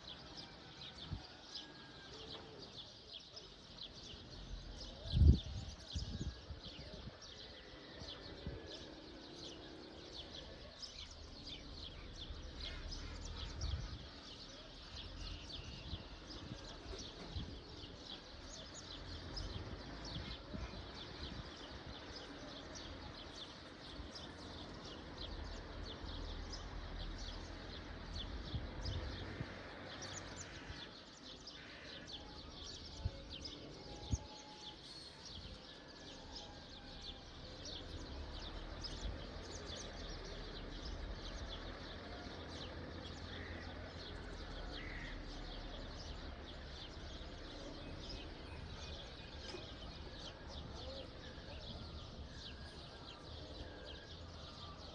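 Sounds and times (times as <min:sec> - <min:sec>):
small birds chirping: 0:02.3 - 0:54.9.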